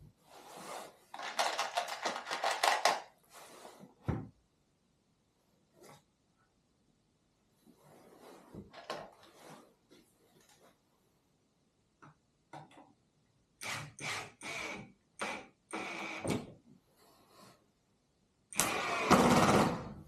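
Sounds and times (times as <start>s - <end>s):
objects being handled: 0.1s - 4.4s.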